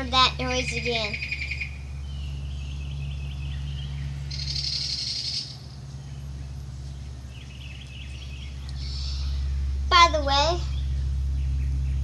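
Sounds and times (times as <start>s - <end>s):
steady low hum: 0.0s - 12.0s
small bird chirping: 0.2s - 9.7s, 10.4s - 12.0s.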